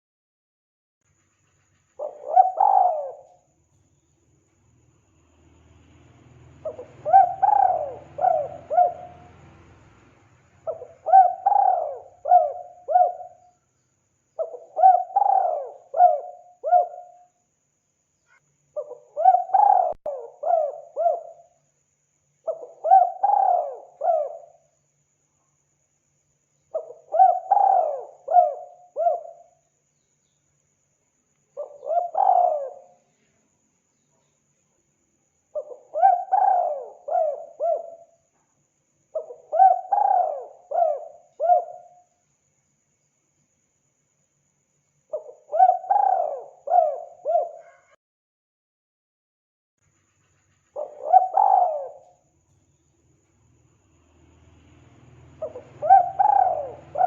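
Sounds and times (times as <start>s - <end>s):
dove cooing: 2.0s - 3.5s, 6.6s - 9.5s, 10.6s - 13.5s, 14.4s - 17.3s, 18.8s - 21.5s, 22.5s - 24.6s, 26.8s - 29.5s, 31.6s - 33.0s, 35.5s - 38.2s, 39.2s - 42.1s, 45.1s - 48.0s, 50.8s - 52.2s, 55.4s - 57.0s.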